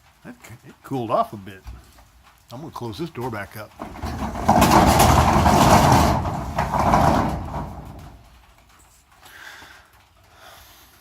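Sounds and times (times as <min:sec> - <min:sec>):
large door sliding shut: 0:03.8 - 0:08.2.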